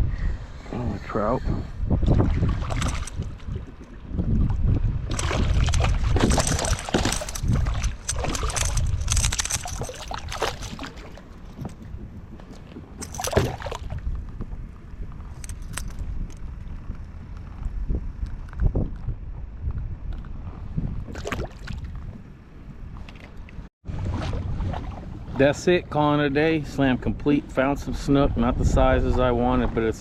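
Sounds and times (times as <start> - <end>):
wind buffeting microphone: 0.0 - 30.0
water sloshing around kayak: 2.0 - 14.7, 22.9 - 25.5.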